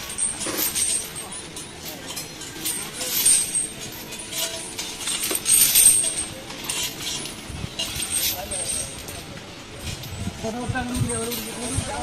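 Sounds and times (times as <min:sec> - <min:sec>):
metal chains clinking and jingling: 0:00.0 - 0:12.0.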